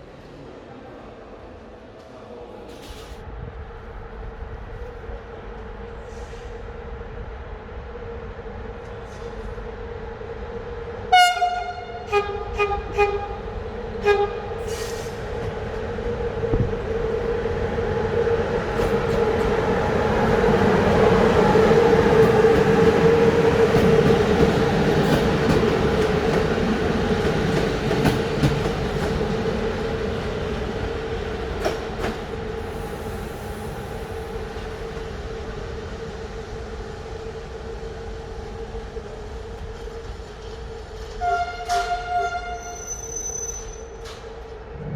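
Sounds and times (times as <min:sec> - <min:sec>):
train rumble: 0:00.0 - 0:44.9
train horn blasts: 0:11.1 - 0:14.7, 0:41.2 - 0:43.0.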